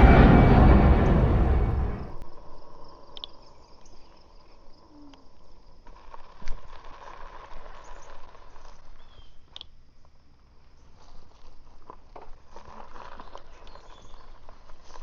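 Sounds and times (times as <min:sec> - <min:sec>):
wind rumble on microphone: 0:00.0 - 0:02.2.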